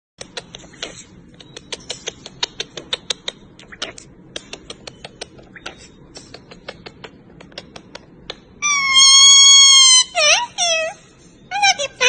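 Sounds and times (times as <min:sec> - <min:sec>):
parrot beak clicks: 0:00.2 - 0:08.6
parrot high drawn-out call: 0:08.6 - 0:12.0.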